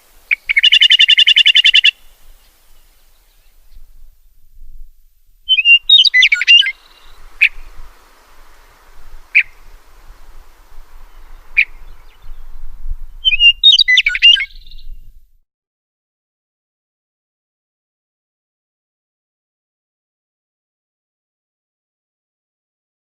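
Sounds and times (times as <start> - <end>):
sharp bird call notes: 0.3 - 2.1, 5.5 - 9.9, 10.9 - 12.3
songbird warbling phrases: 0.3 - 3.9, 5.5 - 12.5, 13.1 - 14.9.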